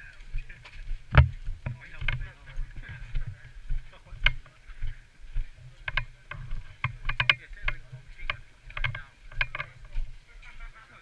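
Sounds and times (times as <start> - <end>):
footstep thuds: 0.3 - 10.7.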